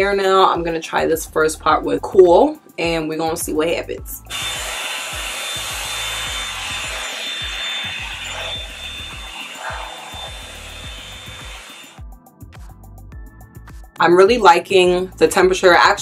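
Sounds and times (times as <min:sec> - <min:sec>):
hair dryer blowing air: 0:04.3 - 0:12.0.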